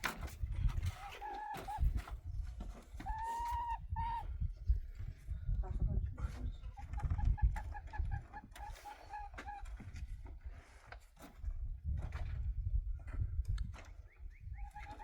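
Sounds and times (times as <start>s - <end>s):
hen clucking: 1.0s - 2.1s, 3.0s - 4.3s, 6.7s - 9.9s, 14.5s - 15.0s.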